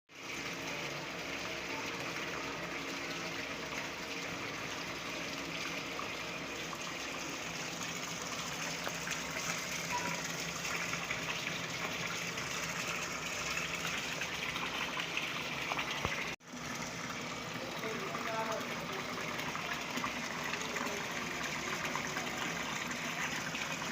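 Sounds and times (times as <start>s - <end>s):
water running and splashing: 0.1s - 23.9s.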